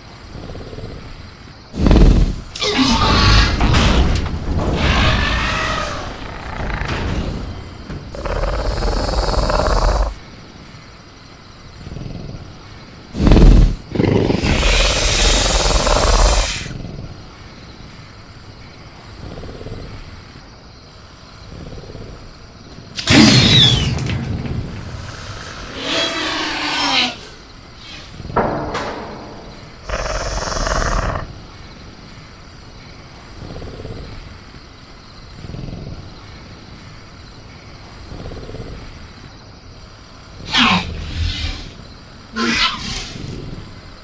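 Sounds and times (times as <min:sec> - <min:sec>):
faint crickets: 0:00.0 - 0:44.0
high insect chirring: 0:04.8 - 0:44.0
high falling screech: 0:23.1 - 0:24.1.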